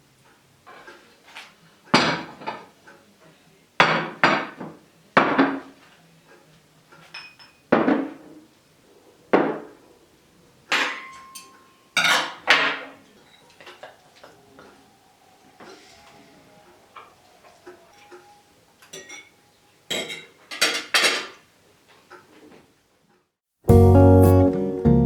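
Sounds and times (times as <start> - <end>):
dishes and cutlery clinking: 6.9 - 8.4, 10.7 - 14.8, 17.0 - 21.5.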